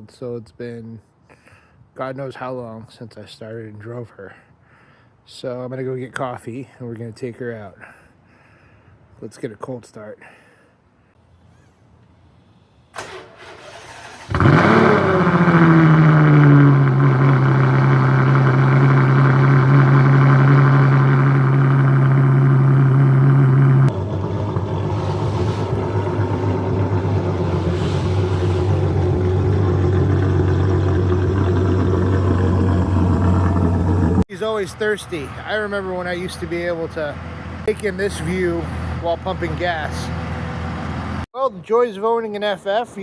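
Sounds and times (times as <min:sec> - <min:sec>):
starter motor cranking: 0:13.0 - 0:25.0
car engine idling: 0:13.6 - 0:41.2.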